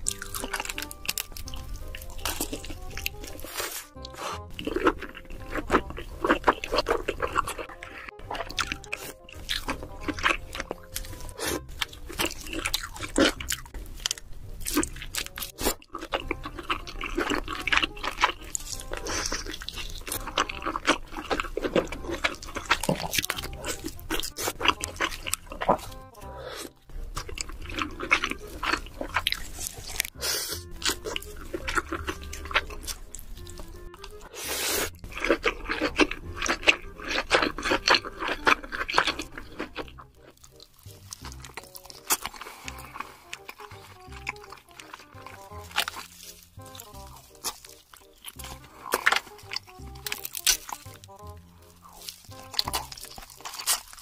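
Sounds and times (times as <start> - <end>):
crunching and chewing crab: 0.0 - 54.0.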